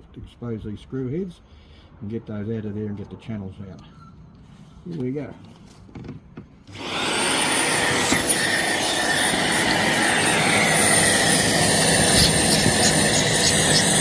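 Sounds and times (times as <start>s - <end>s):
vacuum cleaner whining: 6.7s - 14.0s.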